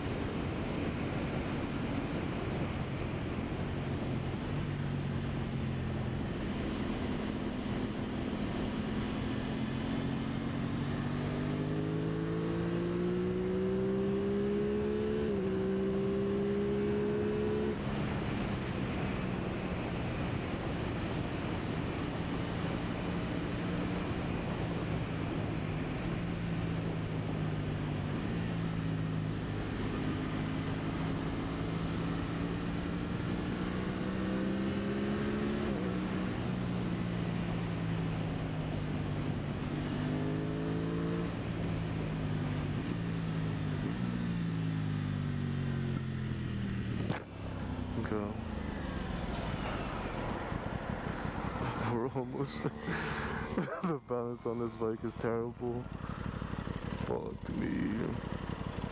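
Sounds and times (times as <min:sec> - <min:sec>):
motorcycle engine revving: 0:10.0 - 0:18.5, 0:27.6 - 0:58.9.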